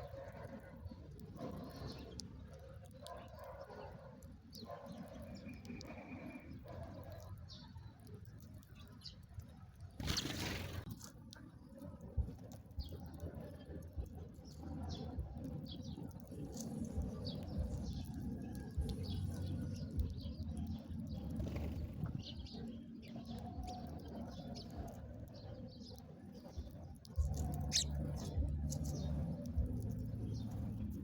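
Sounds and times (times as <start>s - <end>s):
small songbirds chirping: 0.0s - 31.0s
steady low hum: 26.5s - 31.0s.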